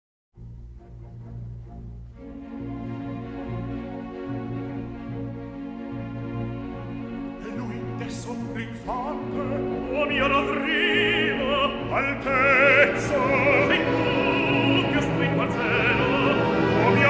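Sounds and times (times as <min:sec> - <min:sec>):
orchestral chords: 0:00.4 - 0:17.0
operatic voice singing: 0:07.3 - 0:17.0.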